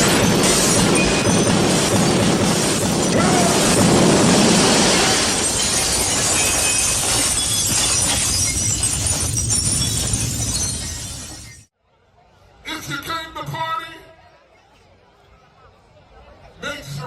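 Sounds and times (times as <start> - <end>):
loud crashing and shattering: 0.0 - 11.7.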